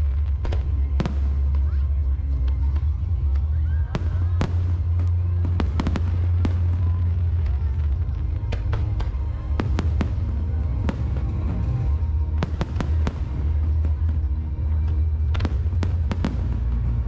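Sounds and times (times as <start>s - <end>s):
low booming of firework bursts: 0.0s - 17.0s.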